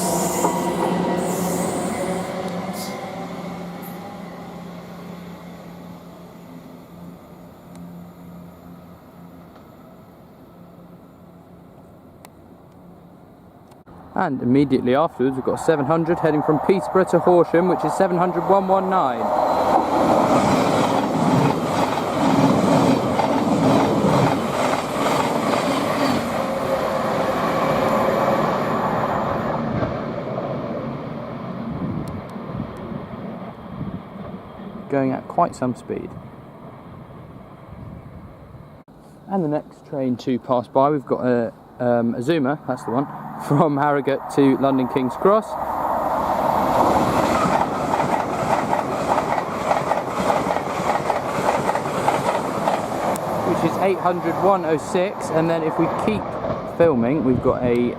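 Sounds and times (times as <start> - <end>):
train passing at speed: 0.0 - 38.9, 41.2 - 57.9
train whine: 0.0 - 39.3, 41.5 - 57.9
wheels clattering over rails: 46.7 - 55.0.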